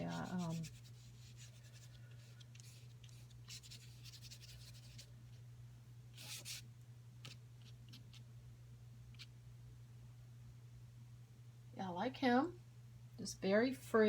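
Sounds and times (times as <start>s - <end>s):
paintbrush strokes on paper: 0.0s - 5.4s, 6.2s - 6.6s
steady low hum: 0.0s - 14.0s.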